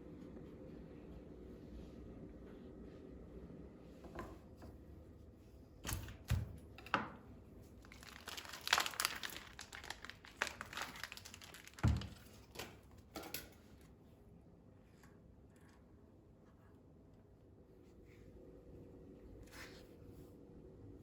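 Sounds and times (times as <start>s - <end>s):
packaging crinkling and rustling: 7.7s - 12.8s.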